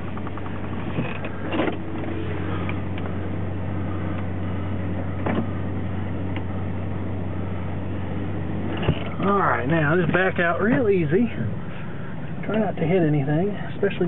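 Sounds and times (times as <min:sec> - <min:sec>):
creaks and clicks: 0:00.0 - 0:03.2
truck engine idling: 0:00.0 - 0:14.0.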